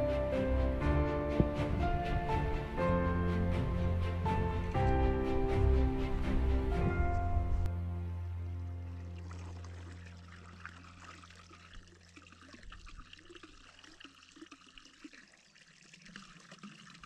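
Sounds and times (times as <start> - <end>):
background music: 0.0 - 11.0
faint trickling water: 8.2 - 17.0.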